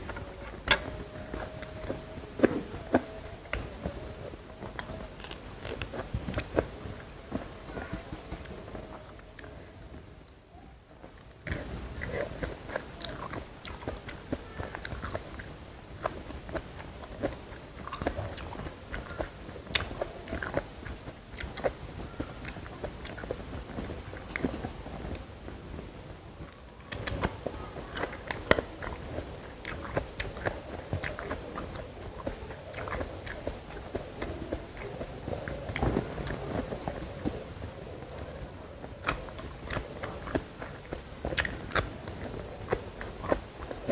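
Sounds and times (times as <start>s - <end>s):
chewing crunchy food: 0.0s - 10.4s, 11.0s - 43.9s
wet mouth sounds: 11.4s - 43.9s.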